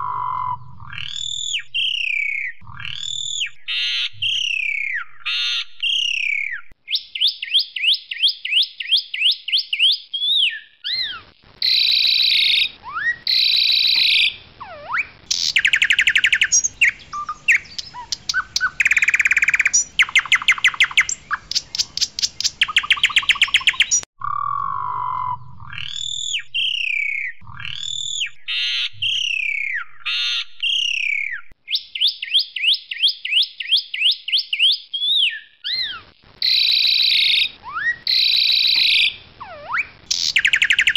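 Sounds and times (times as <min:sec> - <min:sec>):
starling singing: 0:09.8 - 0:32.7, 0:34.0 - 0:40.9.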